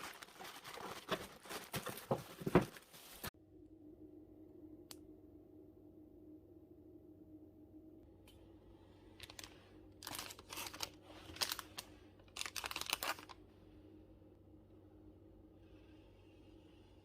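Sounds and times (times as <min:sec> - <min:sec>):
packaging crinkling and rustling: 0:00.0 - 0:03.3, 0:09.2 - 0:13.4
faint steady hum: 0:00.0 - 0:17.0.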